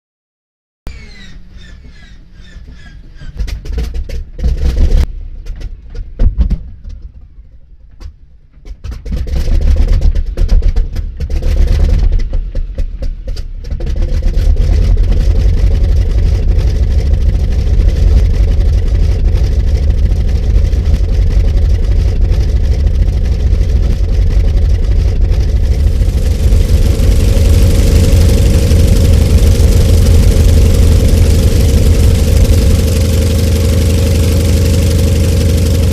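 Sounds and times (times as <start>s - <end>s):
radial engine starting and running: 15.2s - 35.9s.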